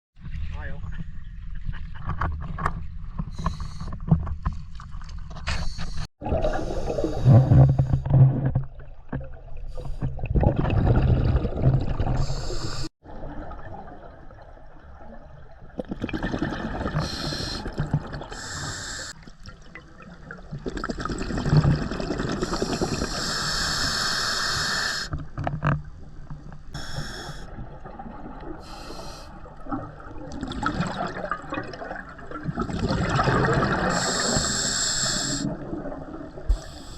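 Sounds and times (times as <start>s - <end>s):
exhaled bubbles rushing: 6.2s - 18.6s, 19.4s - 23.2s, 29.4s - 34.4s, 35.4s - 36.8s
regulator inhale groaning: 12.2s - 12.9s, 18.4s - 19.2s, 22.4s - 25.1s, 26.8s - 27.5s, 33.9s - 35.5s.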